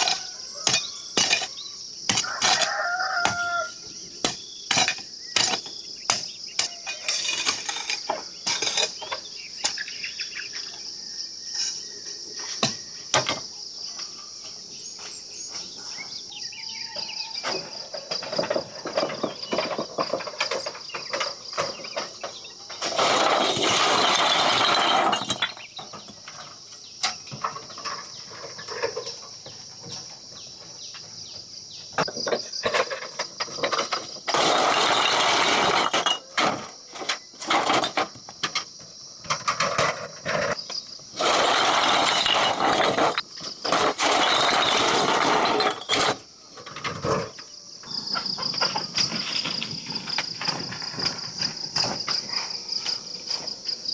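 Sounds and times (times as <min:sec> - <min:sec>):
loud scraping: 0:04.2 - 0:09.0, 0:22.8 - 0:25.5, 0:33.8 - 0:38.1, 0:41.1 - 0:46.3.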